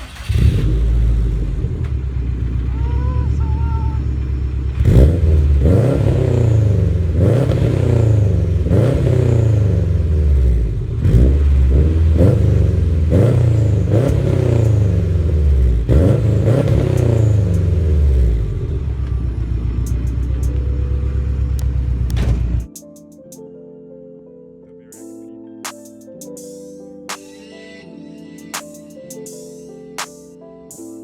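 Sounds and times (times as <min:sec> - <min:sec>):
car engine revving and idling: 0:00.0 - 0:22.7.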